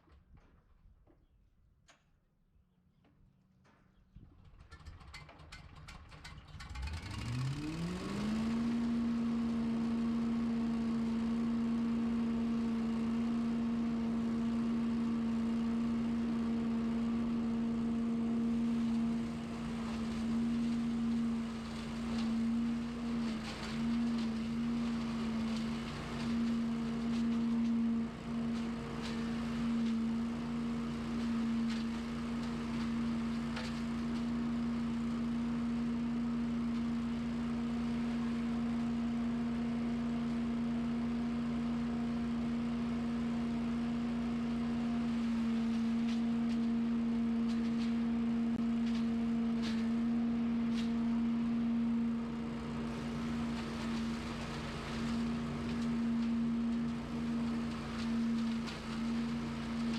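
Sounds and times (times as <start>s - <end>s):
small gas engine running: 4.4s - 59.9s.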